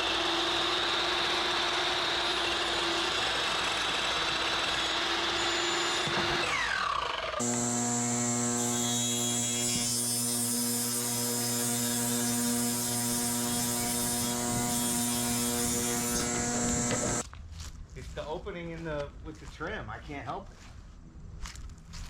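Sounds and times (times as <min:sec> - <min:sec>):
power tool motor running: 0:00.0 - 0:17.2.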